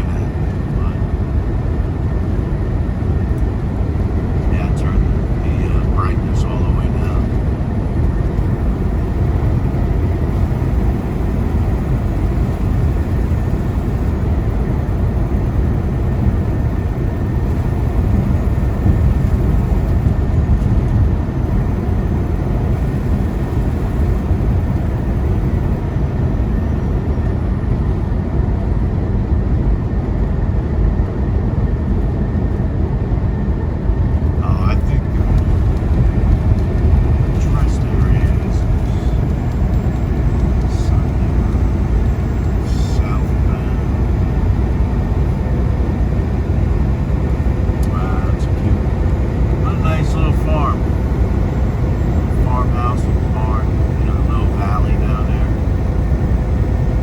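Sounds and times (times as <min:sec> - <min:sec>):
diesel engine drone: 0:00.0 - 0:57.0
tyre and road noise: 0:29.6 - 0:57.0.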